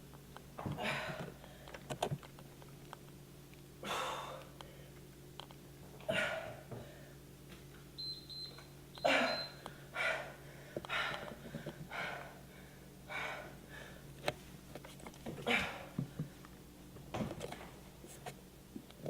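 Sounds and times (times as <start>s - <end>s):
person breathing hard: 0.7s - 1.8s, 3.8s - 5.0s, 9.1s - 14.1s.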